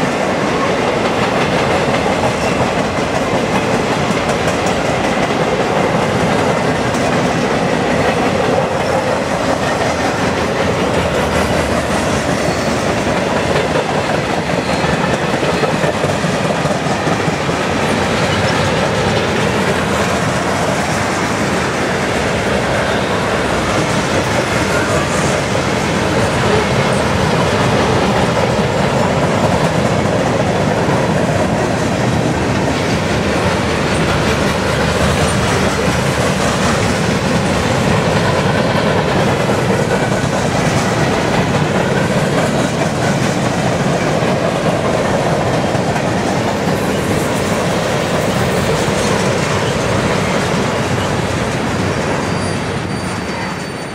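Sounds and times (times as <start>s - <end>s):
freight cars rumbling on rails: 0.0s - 53.9s.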